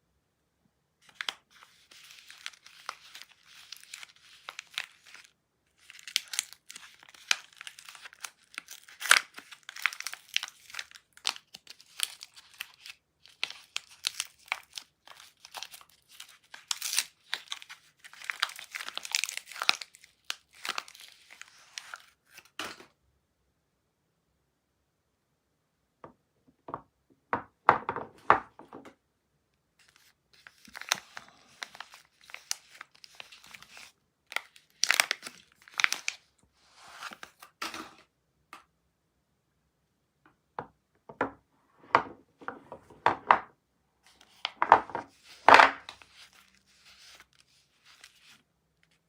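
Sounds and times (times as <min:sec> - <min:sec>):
packaging crinkling and tearing: 0:01.0 - 0:22.8, 0:29.8 - 0:36.3, 0:44.1 - 0:49.0.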